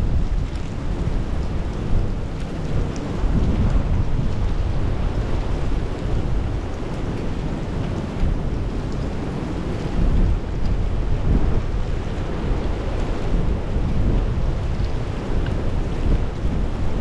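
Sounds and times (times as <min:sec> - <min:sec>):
strong wind on microphone: 0:00.0 - 0:17.0
faint light ticks: 0:00.4 - 0:03.6, 0:05.8 - 0:10.8, 0:14.7 - 0:16.2.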